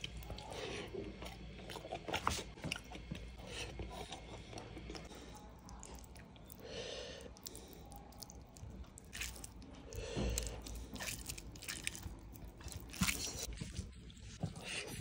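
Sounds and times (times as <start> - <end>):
man chewing with wet mouth clicks: 0.0 - 6.6, 7.2 - 13.5
fingers squishing rice: 2.8 - 13.5.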